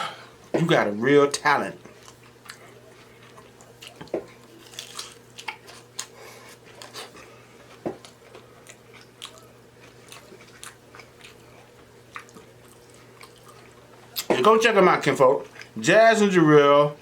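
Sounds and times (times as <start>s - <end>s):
taco shell crunching: 1.9s - 14.3s.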